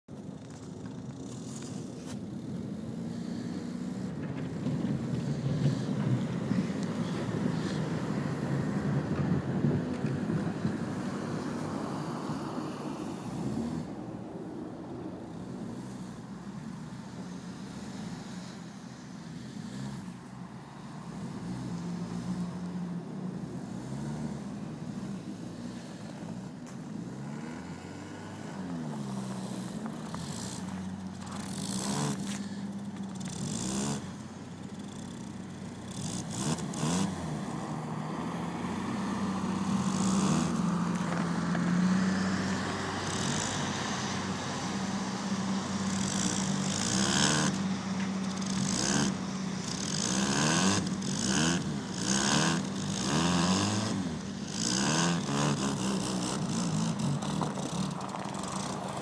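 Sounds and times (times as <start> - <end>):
car engine revving: 15.6 - 59.0.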